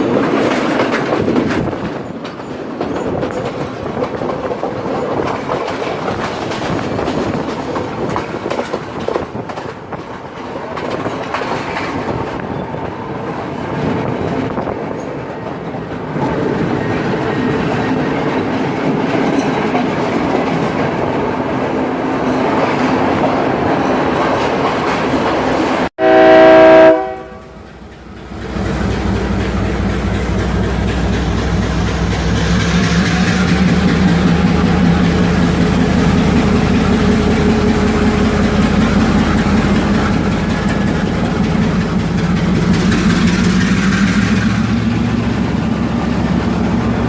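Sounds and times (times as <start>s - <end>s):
train wheels clattering on rails: 0.0s - 25.9s, 27.1s - 47.0s
train horn blast: 26.0s - 27.7s.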